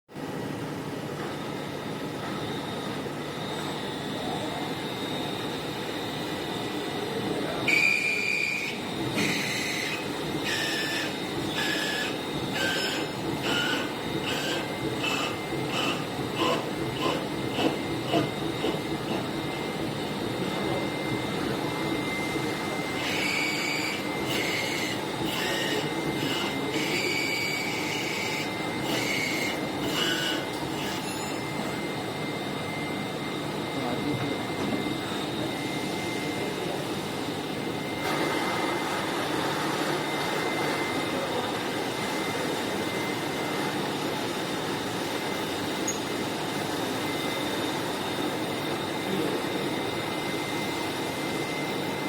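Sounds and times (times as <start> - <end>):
milling machine whine: 0.1 - 52.0
cutter screeching on metal: 7.6 - 19.2, 22.8 - 31.9.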